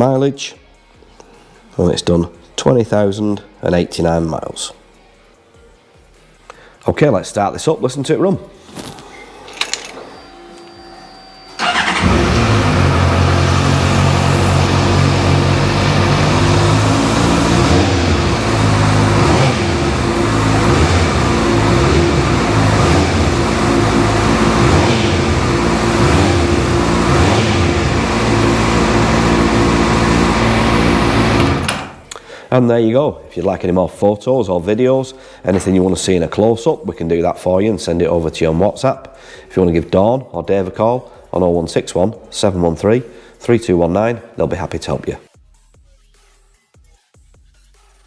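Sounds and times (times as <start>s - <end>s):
electric starter cranking: 11.5s - 32.1s
motorcycle engine idling: 11.6s - 31.6s.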